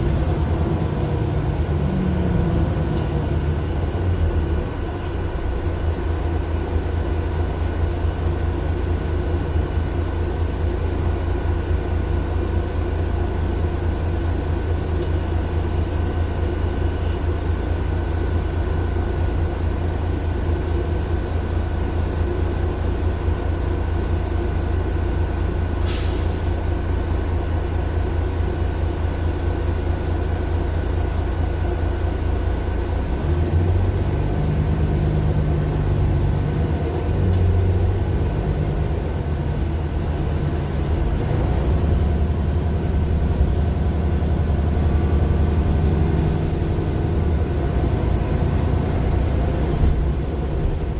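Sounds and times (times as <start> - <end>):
bus diesel engine droning: 0.0 - 50.9
short air hiss: 25.8 - 26.4.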